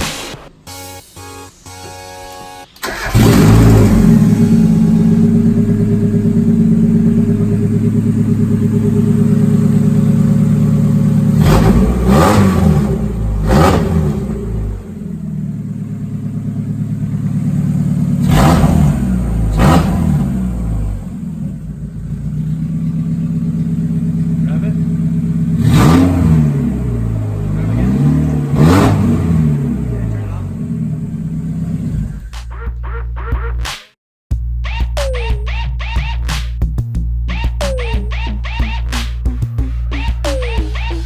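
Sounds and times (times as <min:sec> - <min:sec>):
car engine starting and idling: 0:00.0 - 0:33.5
engine revs blipped: 0:00.0 - 0:33.6, 0:37.2 - 0:41.0.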